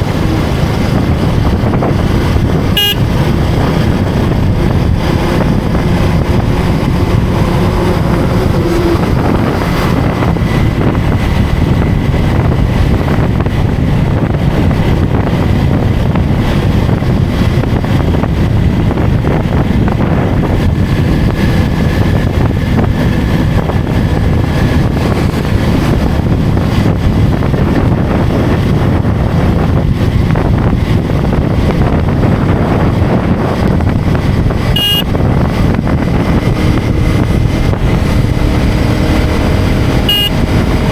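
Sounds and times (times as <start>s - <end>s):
motorcycle engine running: 0.0s - 40.9s
road noise: 0.0s - 40.9s
wind buffeting microphone: 0.0s - 40.9s.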